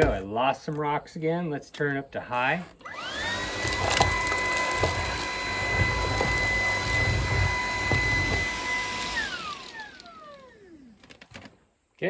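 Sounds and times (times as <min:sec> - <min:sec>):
vacuum cleaner motor whine: 0:02.8 - 0:11.0.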